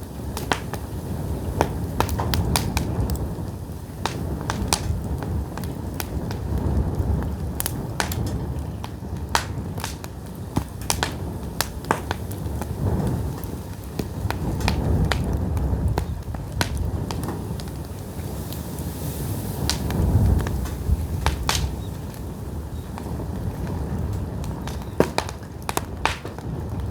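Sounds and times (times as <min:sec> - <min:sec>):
firewood crackling and popping: 0:00.0 - 0:26.9
low rumble of fire: 0:00.0 - 0:26.9.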